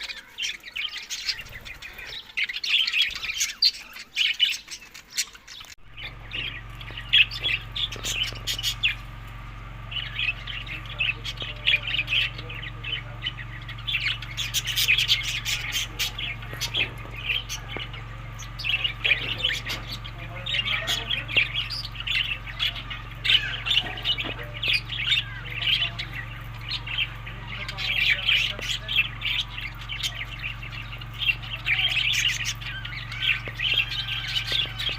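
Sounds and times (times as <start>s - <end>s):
budgerigars chattering: 0.0s - 34.9s
steady low hum: 5.6s - 34.9s.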